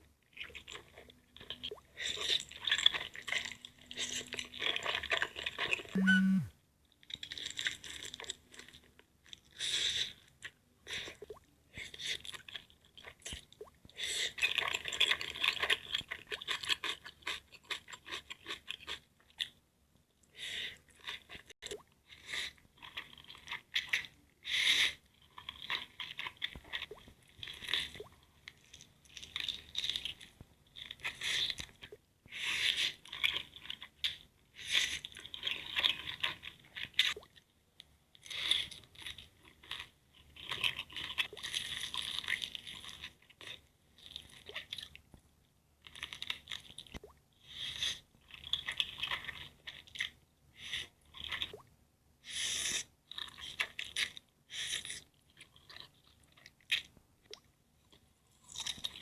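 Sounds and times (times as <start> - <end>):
crunchy bites and chewing: 38.2 - 44.9.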